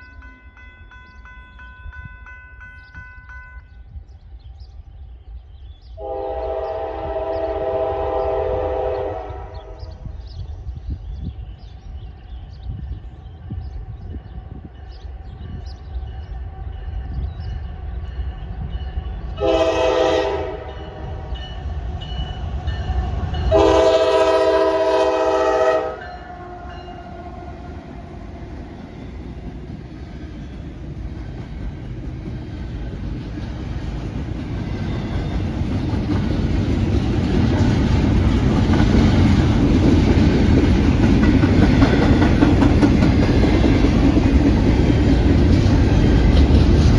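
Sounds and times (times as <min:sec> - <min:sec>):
train rumbling: 0:00.0 - 0:46.9
locomotive air horn blasts: 0:06.0 - 0:09.8, 0:19.4 - 0:21.0, 0:23.5 - 0:27.5.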